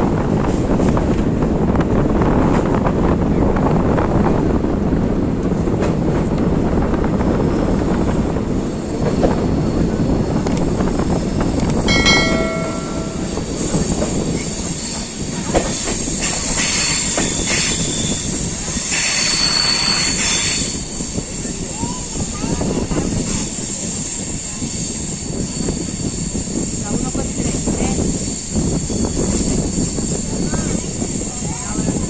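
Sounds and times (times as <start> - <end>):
train rumble with wheel clatter: 0.0 - 32.0.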